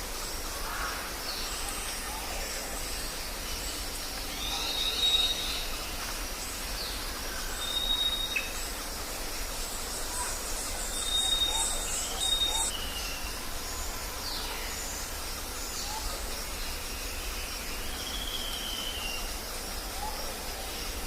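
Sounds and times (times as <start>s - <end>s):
steady background hiss: 0.0s - 21.0s
bird chirps: 10.2s - 13.4s
birds whistling: 11.0s - 13.2s.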